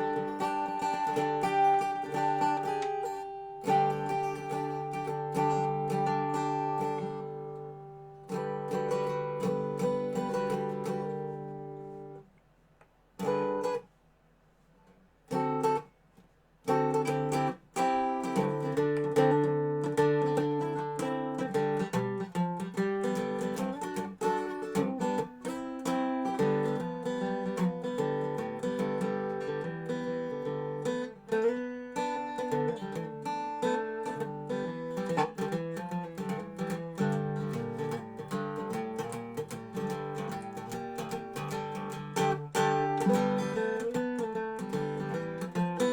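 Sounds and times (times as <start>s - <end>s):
resonator guitar picking: 0.0s - 12.2s, 13.2s - 13.8s, 15.3s - 15.9s, 16.6s - 45.9s.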